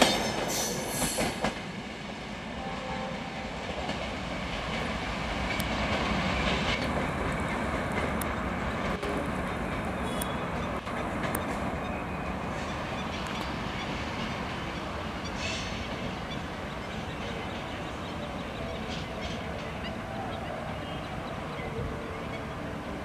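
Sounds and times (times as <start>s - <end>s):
train wheels rumbling on rail: 0.0s - 23.0s
wheels clicking over rail joints: 3.8s - 11.8s.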